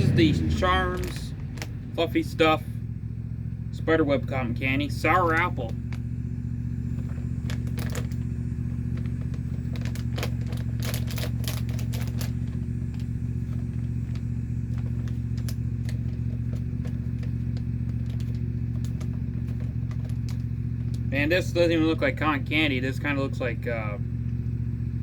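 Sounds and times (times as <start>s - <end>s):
lawnmower engine droning: 0.0s - 25.0s
sharp crackles and clicks: 0.7s - 2.0s, 5.2s - 21.2s.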